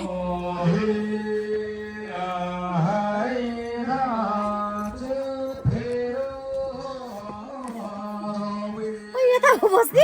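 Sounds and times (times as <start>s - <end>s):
man chanting over loudspeaker: 0.0s - 9.2s.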